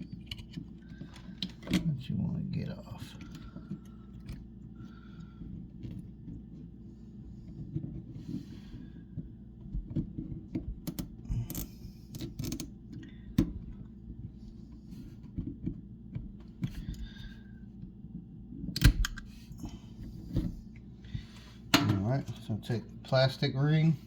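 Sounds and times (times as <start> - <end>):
plastic faucet parts clicking and scraping: 0.0 - 1.9, 9.8 - 13.8.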